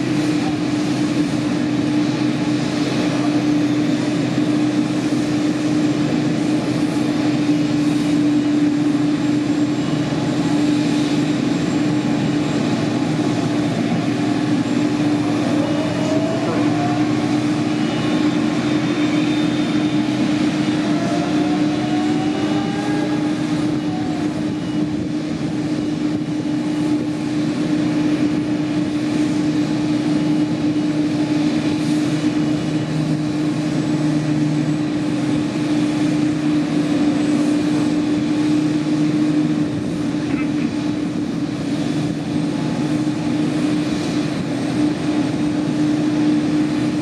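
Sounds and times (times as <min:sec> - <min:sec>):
jet engines idling: 0:00.0 - 0:47.0.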